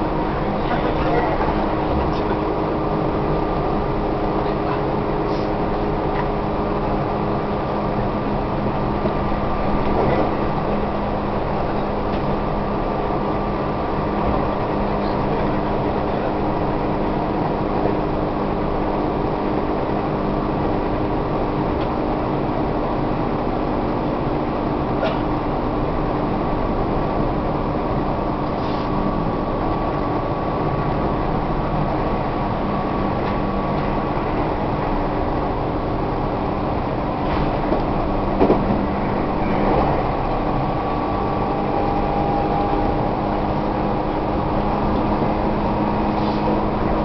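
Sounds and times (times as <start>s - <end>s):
electric train rumble and hum: 0.0s - 47.0s.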